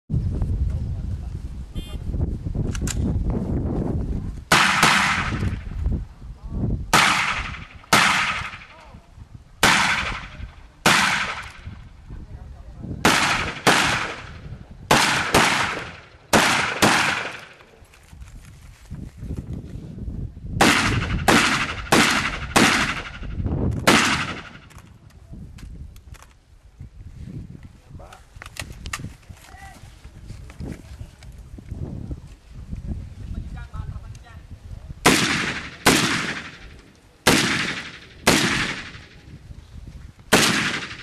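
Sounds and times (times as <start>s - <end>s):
gunshots: 4.5s - 5.6s, 6.9s - 8.8s, 9.6s - 11.8s, 13.0s - 17.6s, 20.6s - 24.8s, 35.0s - 39.2s, 40.3s - 41.0s.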